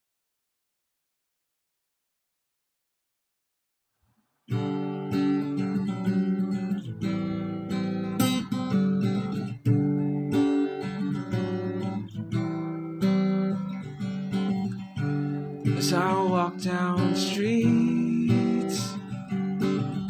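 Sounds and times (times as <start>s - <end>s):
acoustic guitar strumming: 4.5s - 20.0s.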